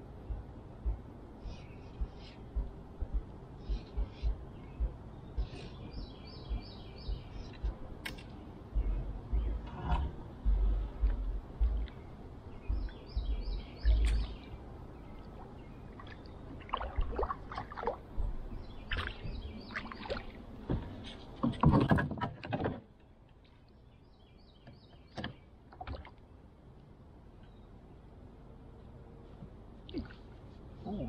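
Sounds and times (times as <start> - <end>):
bird chirping: 0.2 - 16.5, 18.5 - 20.4
water splashing: 15.3 - 18.1
knocks and rustles around kayak: 20.1 - 23.0.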